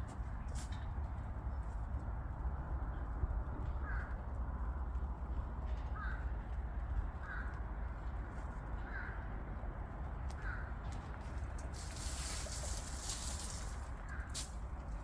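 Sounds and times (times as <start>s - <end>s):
steady low rumble: 9.7s - 15.0s.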